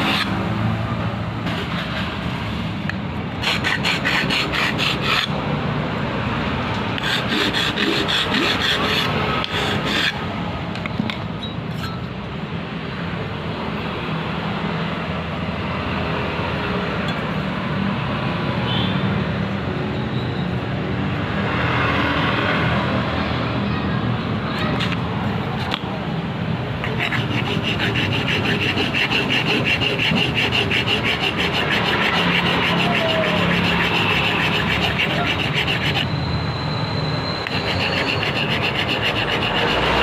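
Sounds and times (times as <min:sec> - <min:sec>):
filing metal: 0:00.0 - 0:00.5, 0:03.4 - 0:05.4, 0:07.0 - 0:10.2, 0:26.8 - 0:36.3, 0:37.4 - 0:40.0.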